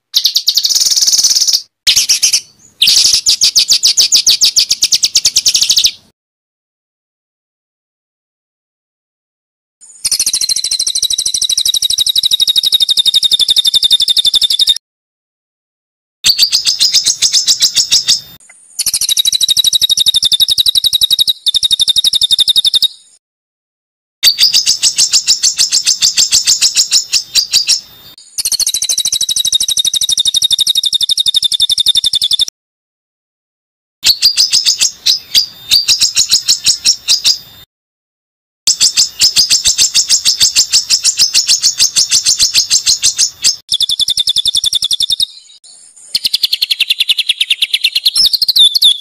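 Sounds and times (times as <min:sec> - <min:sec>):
songbird trilling: 0:00.1 - 0:06.0, 0:09.8 - 0:14.8, 0:16.3 - 0:23.2, 0:24.2 - 0:32.5, 0:34.0 - 0:37.5, 0:38.7 - 0:49.0.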